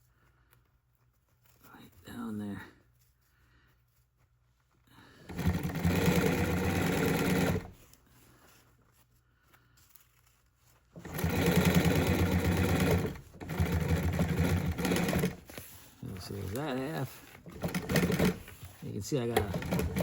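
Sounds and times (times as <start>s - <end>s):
sewing machine stitching: 5.2s - 7.8s, 11.0s - 20.0s.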